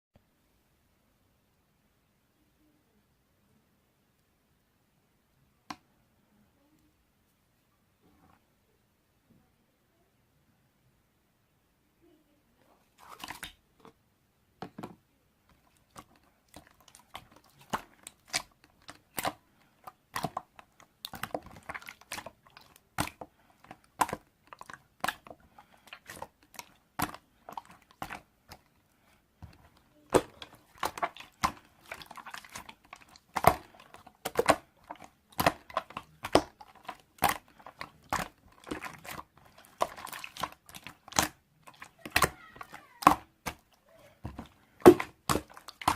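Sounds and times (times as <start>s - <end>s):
apple crunching: 29.4s - 45.9s.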